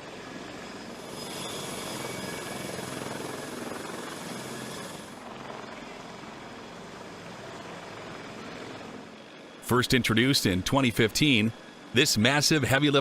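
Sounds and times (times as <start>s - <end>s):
helicopter running: 0.0s - 13.0s.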